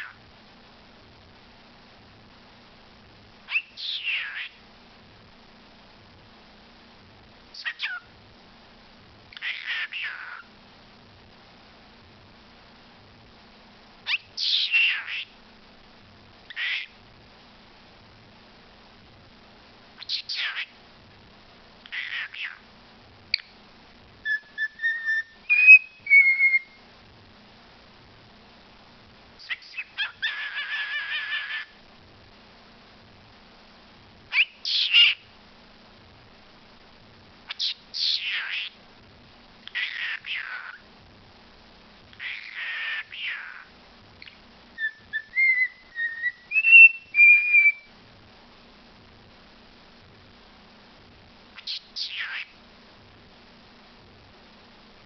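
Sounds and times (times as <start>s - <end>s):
bird whistling: 3.5s - 4.5s, 14.1s - 15.2s, 24.3s - 26.8s, 34.3s - 35.2s, 44.8s - 47.9s
bird chirp: 3.5s - 4.6s, 7.6s - 8.1s, 9.4s - 10.5s, 14.0s - 15.4s, 16.5s - 17.0s, 20.0s - 20.8s, 23.3s - 23.6s, 24.2s - 26.8s, 29.4s - 31.8s, 34.3s - 35.3s, 37.5s - 38.8s, 39.7s - 40.8s, 42.2s - 47.9s, 51.6s - 52.6s.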